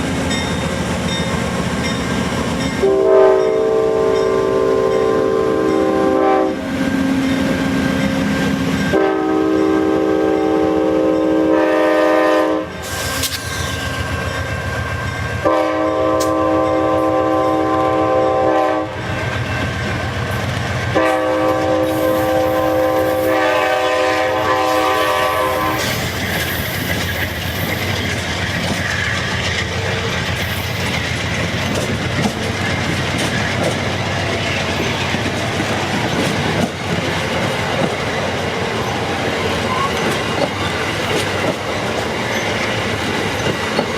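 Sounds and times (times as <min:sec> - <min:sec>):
train horn blasts: 0:02.7 - 0:06.8, 0:08.8 - 0:13.0, 0:15.4 - 0:19.1, 0:20.9 - 0:26.1
train wheels clicking over rail joints: 0:12.7 - 0:15.4, 0:25.4 - 0:43.9.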